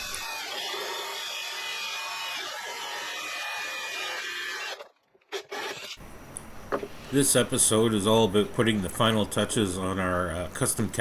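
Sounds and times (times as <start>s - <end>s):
quieter lower background noise: 6.0s - 11.0s.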